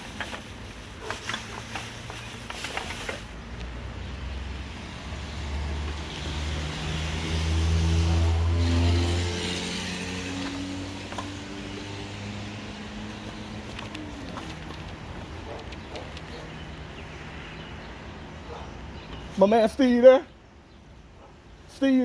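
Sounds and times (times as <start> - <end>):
car engine accelerating: 4.4 - 14.9.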